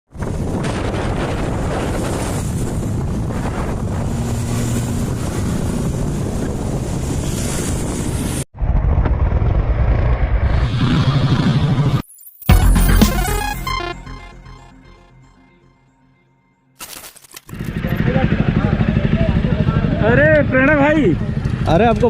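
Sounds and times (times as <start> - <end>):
wind noise on microphone: 0.1 - 11.8
motorcycle engine running: 17.5 - 22.0.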